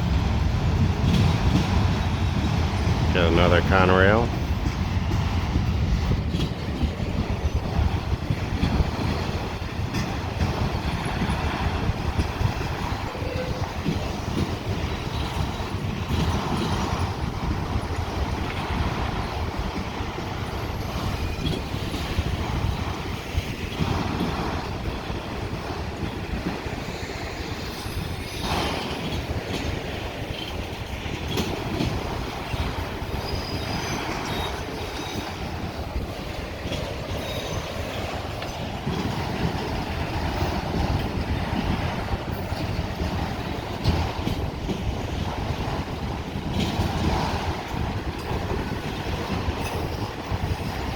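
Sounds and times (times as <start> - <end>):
freight train wheels rumbling: 0.0 - 50.9
faint wheel squeal: 33.2 - 35.2.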